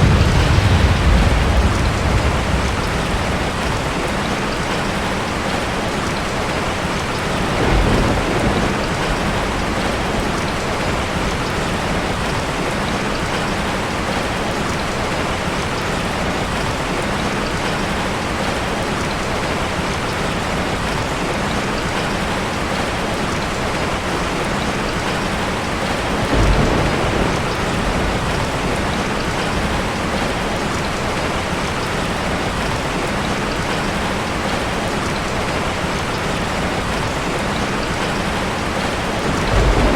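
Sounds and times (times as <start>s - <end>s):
thunder rumbles: 0.0s - 14.4s, 24.0s - 32.9s, 36.8s - 39.9s
heavy rain: 0.0s - 39.9s.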